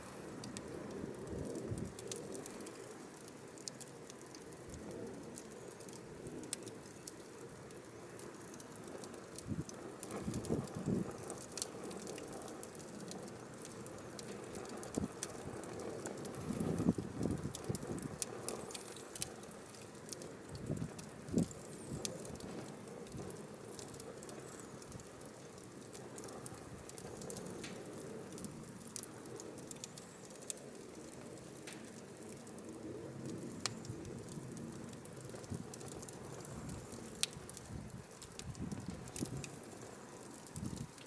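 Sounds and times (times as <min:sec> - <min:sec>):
firewood crackling and popping: 0:00.0 - 0:41.0
rush of flames: 0:00.0 - 0:41.0.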